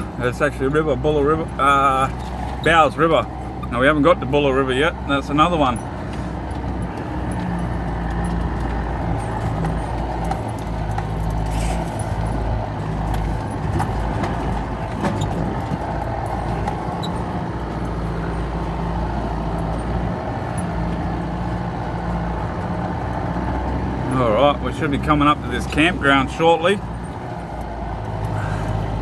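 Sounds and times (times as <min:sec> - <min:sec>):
engine running inside cab: 0:00.0 - 0:29.0
small rattles and knocks: 0:01.3 - 0:04.3, 0:04.9 - 0:24.1.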